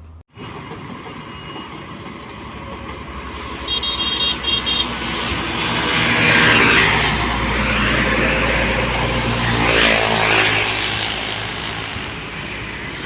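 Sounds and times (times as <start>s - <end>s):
truck passing by: 2.4s - 13.0s
truck horn blasts: 3.7s - 5.2s.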